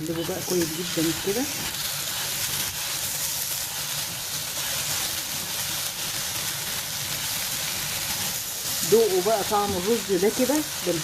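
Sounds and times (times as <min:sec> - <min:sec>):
food sizzling in a pot: 0:00.0 - 0:11.0.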